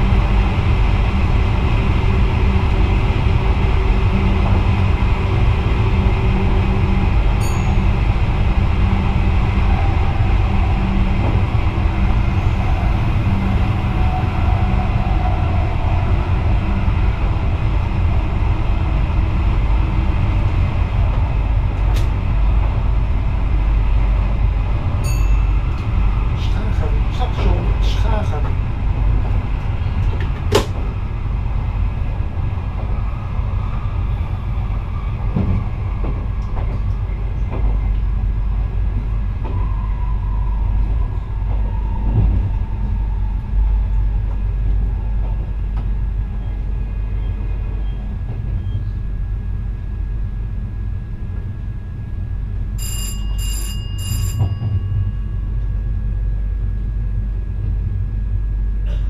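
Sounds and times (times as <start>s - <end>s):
train wheels rumbling on rail: 0.0s - 59.0s
bell-like rings: 7.4s - 8.0s, 25.0s - 25.7s, 52.8s - 55.5s.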